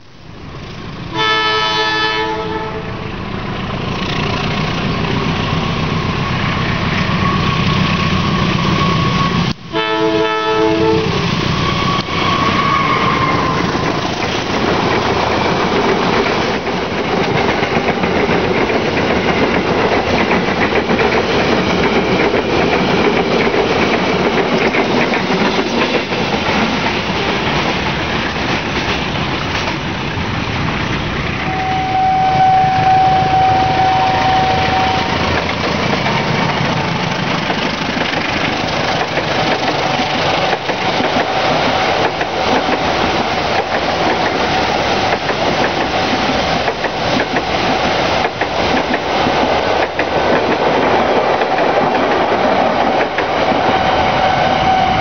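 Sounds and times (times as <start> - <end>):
passenger train passing: 0.0 - 55.0
wheels clicking over rail joints: 12.8 - 31.5, 34.6 - 53.8
steady high tone: 31.4 - 35.6.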